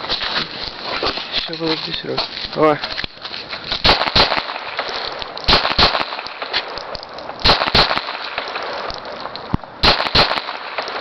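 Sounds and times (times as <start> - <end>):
pistol shots: 3.8 - 9.2, 9.8 - 11.0.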